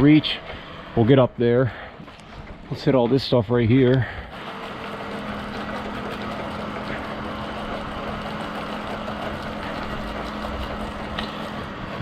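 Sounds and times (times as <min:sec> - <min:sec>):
motor hum: 0:00.0 - 0:12.0.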